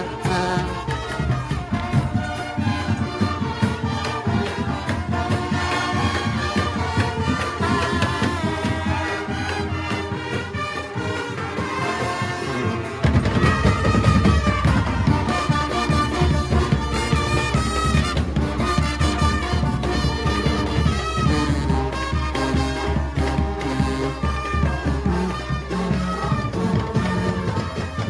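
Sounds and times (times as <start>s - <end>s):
brass: 0.0s - 28.0s
driving drums: 0.0s - 28.0s.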